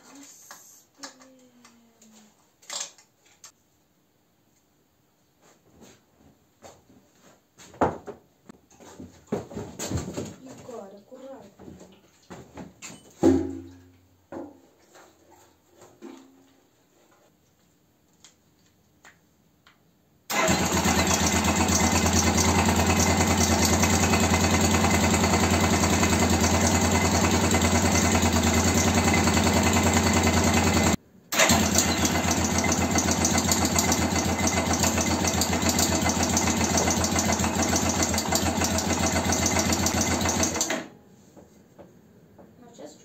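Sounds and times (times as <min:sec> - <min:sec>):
motorcycle engine running: 0:20.3 - 0:40.7.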